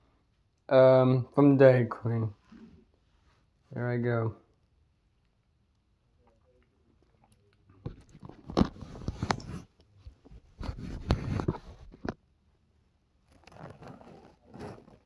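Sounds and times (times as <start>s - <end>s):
crunching and scraping while eating: 6.2s - 12.2s, 13.2s - 15.0s.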